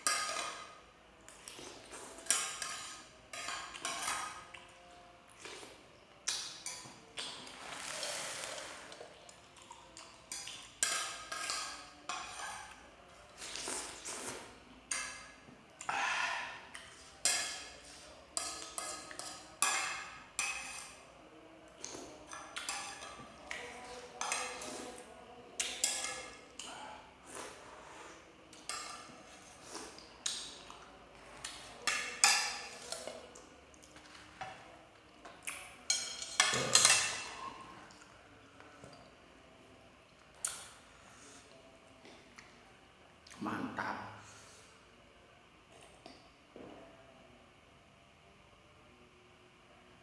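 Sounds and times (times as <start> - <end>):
metal spoon scraping a dish: 1.8 - 4.5, 10.3 - 15.4, 16.8 - 21.1, 22.1 - 26.7.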